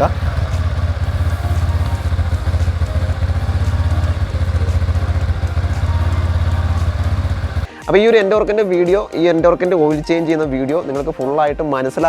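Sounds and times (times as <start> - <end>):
scooter engine idling: 0.0 - 7.7.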